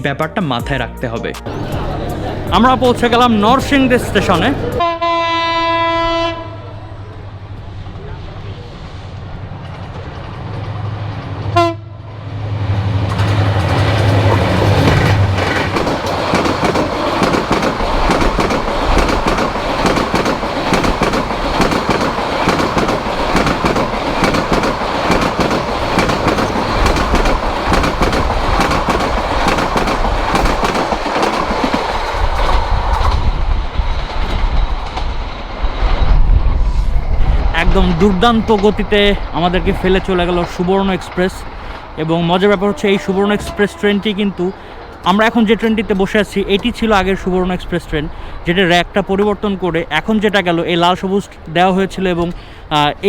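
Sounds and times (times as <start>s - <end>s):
train passing at high speed: 1.5s - 53.0s
wheels clacking over rail joints: 9.2s - 11.6s, 13.0s - 35.8s.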